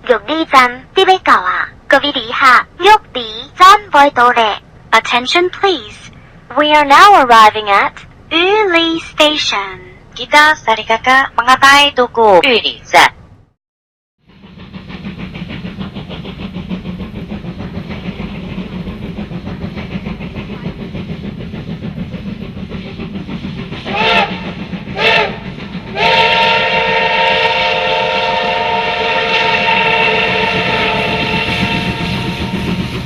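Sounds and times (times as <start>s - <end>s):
train wheels clattering on rails: 14.3s - 33.0s
steam locomotive whistle: 23.8s - 33.0s.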